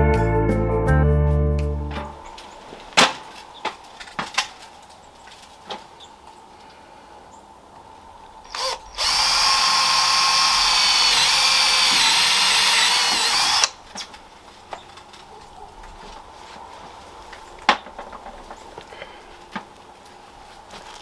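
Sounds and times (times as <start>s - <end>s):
electric drill whining: 8.5s - 13.8s.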